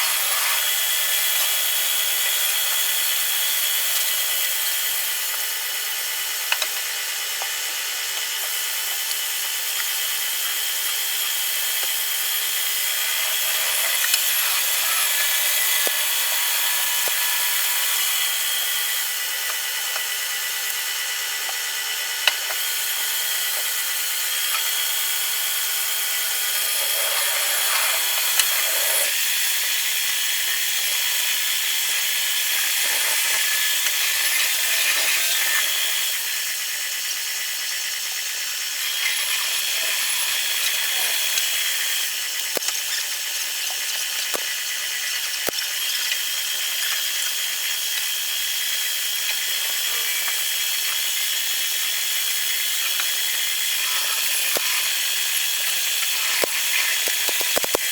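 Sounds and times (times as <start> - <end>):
power tool whining on wood: 0.0 - 57.9.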